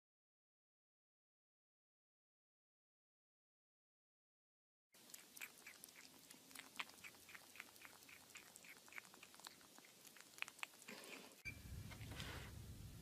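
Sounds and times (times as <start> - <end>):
animal chewing: 5.0 - 11.4
loud low noise: 11.5 - 13.0.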